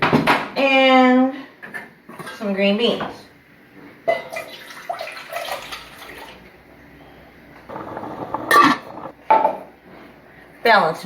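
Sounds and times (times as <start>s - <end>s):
kitchenware clatter: 7.7s - 9.5s.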